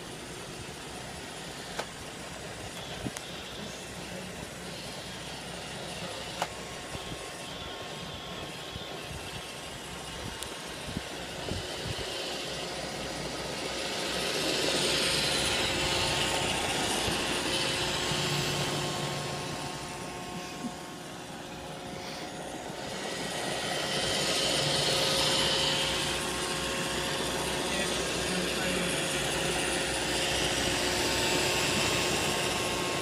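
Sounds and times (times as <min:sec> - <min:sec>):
robot vacuum whirring: 0:00.0 - 0:33.0.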